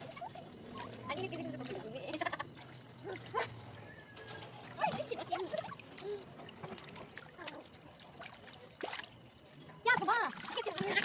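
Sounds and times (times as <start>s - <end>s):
water sloshing in plastic tub: 4.4s - 11.0s.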